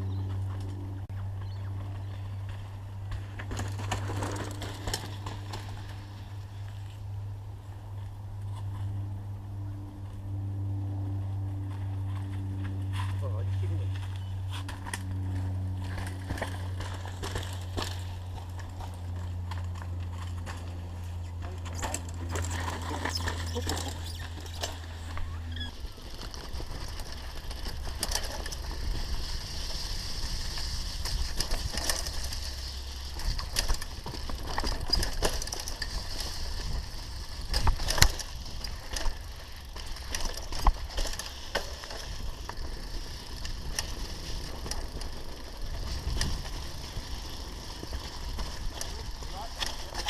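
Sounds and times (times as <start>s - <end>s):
bike knocking and rattling: 0.0s - 7.3s, 11.0s - 50.0s
tyres crunching over dirt: 11.5s - 50.0s
bicycle freewheel clicking: 25.5s - 50.0s.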